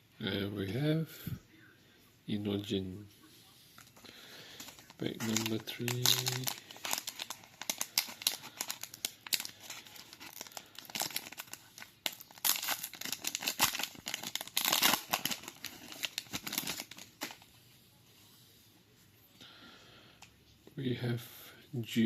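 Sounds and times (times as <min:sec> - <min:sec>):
wrapper tearing and crinkling: 0:04.6 - 0:17.5.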